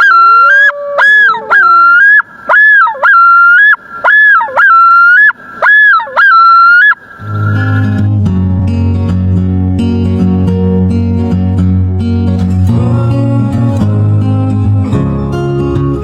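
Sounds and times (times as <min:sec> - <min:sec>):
waterfowl honking: 0:00.0 - 0:08.1
acoustic guitar music: 0:07.0 - 0:16.0.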